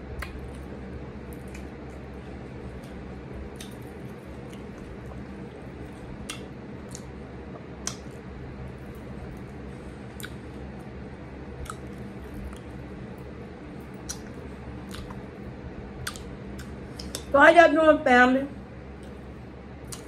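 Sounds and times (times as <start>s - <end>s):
steady low hum: 0.0s - 20.0s
lip smacks: 0.1s - 8.3s, 9.4s - 10.6s, 11.6s - 15.4s, 16.0s - 17.3s, 19.0s - 20.0s
wet chewing: 0.1s - 10.9s, 11.5s - 17.3s, 19.0s - 20.0s.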